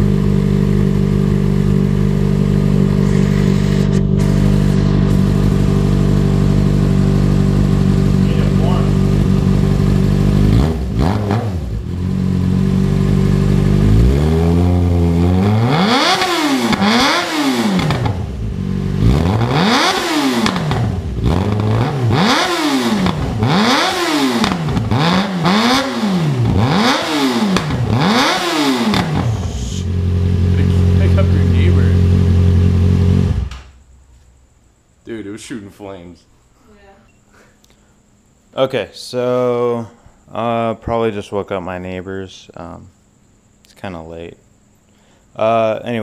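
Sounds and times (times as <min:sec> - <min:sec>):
motorcycle engine revving: 0:00.0 - 0:33.8.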